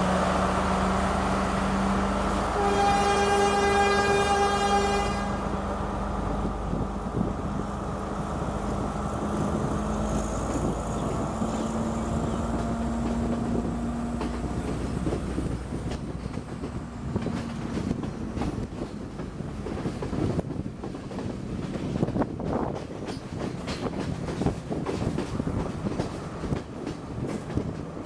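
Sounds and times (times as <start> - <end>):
train rumbling: 0.0 - 28.0
train horn: 2.5 - 5.6
train wheels clicking: 6.2 - 28.0.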